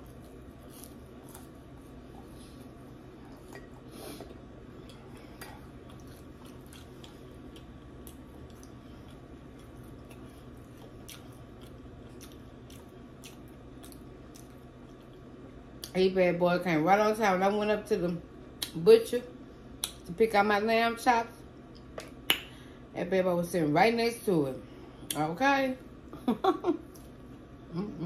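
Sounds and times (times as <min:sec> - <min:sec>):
person chewing: 0:00.0 - 0:15.9.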